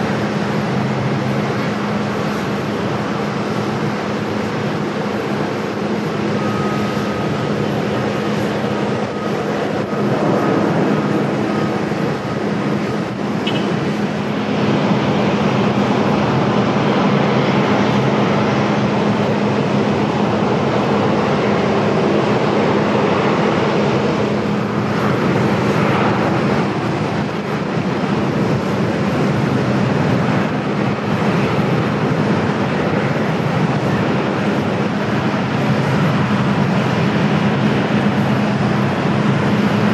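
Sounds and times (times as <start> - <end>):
jet engines roaring: 0.0 - 39.9
thin high whine: 5.4 - 14.2.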